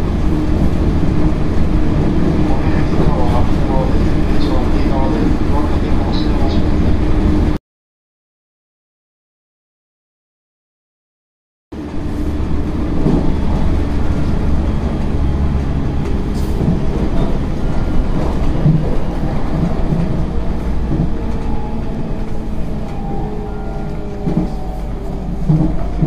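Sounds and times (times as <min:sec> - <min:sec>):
train wheels rumbling on rails: 0:00.0 - 0:07.6, 0:11.8 - 0:26.0.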